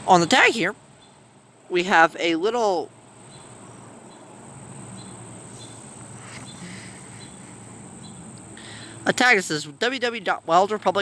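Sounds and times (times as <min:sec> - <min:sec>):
steady low hum: 0:02.8 - 0:11.0.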